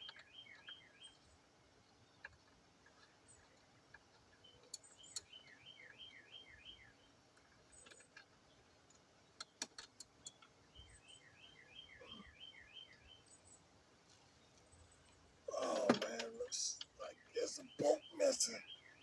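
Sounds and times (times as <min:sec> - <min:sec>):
bird chirping: 0:00.0 - 0:19.0
clicks and taps of parts handled: 0:07.3 - 0:10.5.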